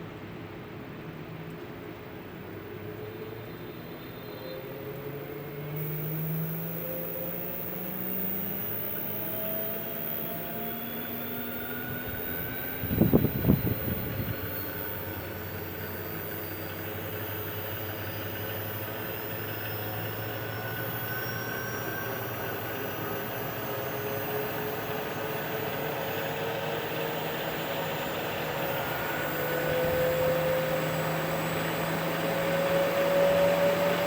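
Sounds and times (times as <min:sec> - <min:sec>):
treadmill motor whining: 0:05.7 - 0:34.0.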